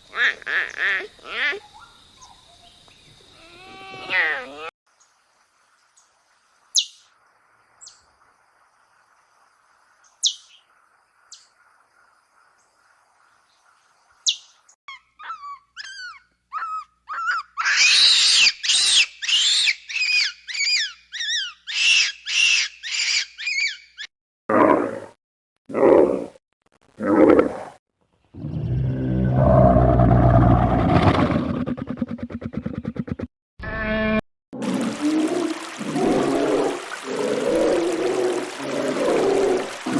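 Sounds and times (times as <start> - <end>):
animal calling: 14.9 - 23.8.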